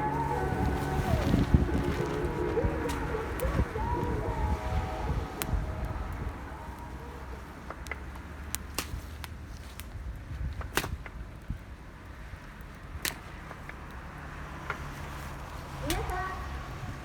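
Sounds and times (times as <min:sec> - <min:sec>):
low rumble: 0:00.0 - 0:08.1
wood fire crackling and popping: 0:00.0 - 0:16.5.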